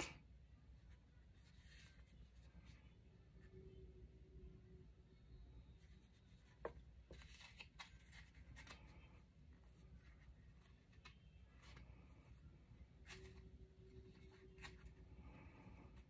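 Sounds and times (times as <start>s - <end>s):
paper tag and string rustling: 5.8s - 16.0s.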